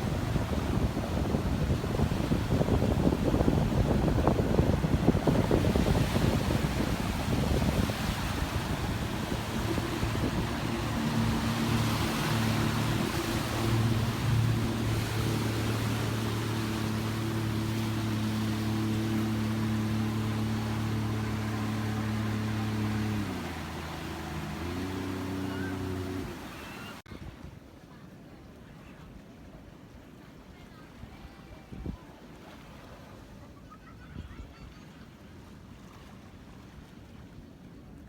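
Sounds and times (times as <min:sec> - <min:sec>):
steady engine hum: 0:00.0 - 0:27.0
wind buffeting microphone: 0:00.0 - 0:27.4
surf: 0:00.0 - 0:38.0.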